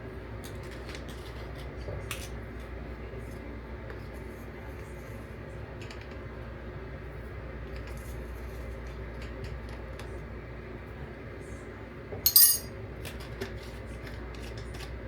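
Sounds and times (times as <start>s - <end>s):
kitchen utensils clicking and scraping: 12.3s - 12.7s.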